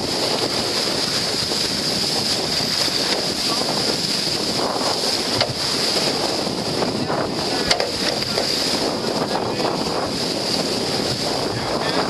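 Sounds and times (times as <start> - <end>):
water rushing by boat: 0.0 - 12.0
wind buffeting microphone: 0.0 - 12.0
sharp knocks: 5.4 - 5.6.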